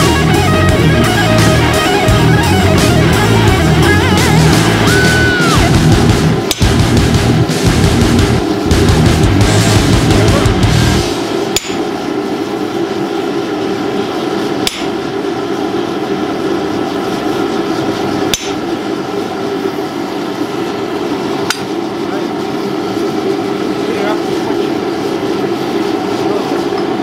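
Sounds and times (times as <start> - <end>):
steady drone: 0.0 - 27.0
hammer striking metal on anvil: 6.4 - 6.8, 11.5 - 11.9, 14.6 - 15.0, 18.3 - 18.6, 21.5 - 21.7.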